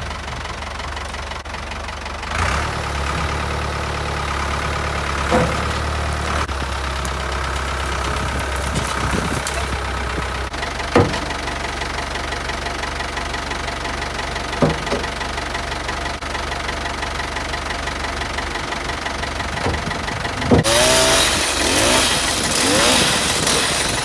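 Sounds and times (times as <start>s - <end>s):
tractor diesel engine idling: 0.0s - 24.0s
short clunks: 5.1s - 10.3s, 10.9s - 11.4s, 14.6s - 15.2s.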